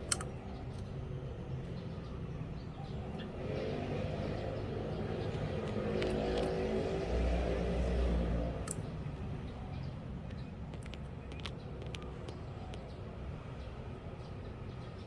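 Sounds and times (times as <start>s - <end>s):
motor vehicle passing by: 2.8s - 9.8s.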